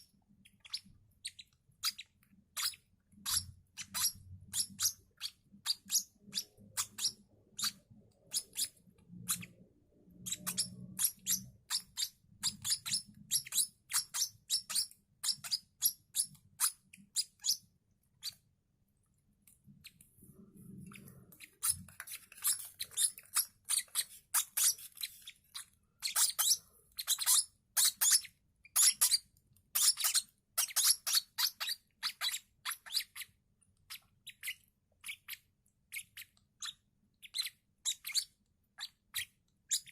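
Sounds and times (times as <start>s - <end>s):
bird chicks cheeping: 0.1s - 18.4s.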